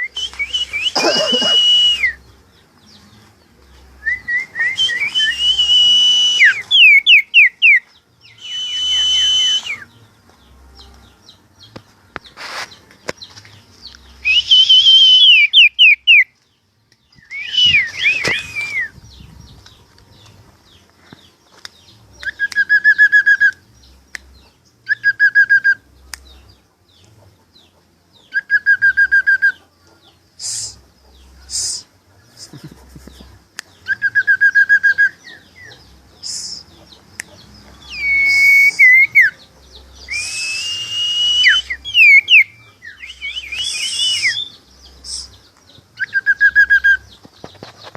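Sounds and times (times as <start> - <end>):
bird sliding whistled notes: 0.0 - 2.2, 4.1 - 7.8, 8.4 - 9.8, 17.2 - 19.0, 38.0 - 39.3, 40.1 - 45.3.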